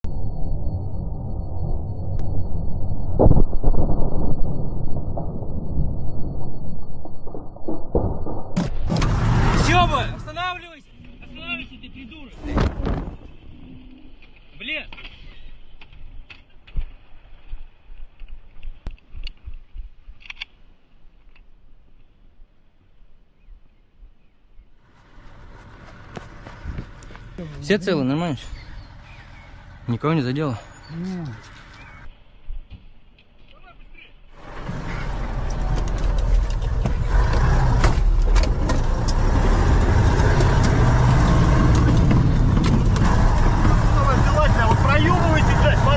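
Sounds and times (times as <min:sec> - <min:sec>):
vehicle engine running: 0:08.9 - 0:11.6, 0:24.9 - 0:32.1, 0:34.4 - 0:45.9.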